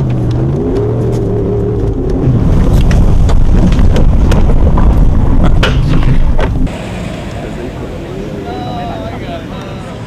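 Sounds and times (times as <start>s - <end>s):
wind buffeting microphone: 0.0s - 6.7s
truck engine and tyre rumble: 0.0s - 10.0s
knocks and rattles: 2.7s - 6.7s.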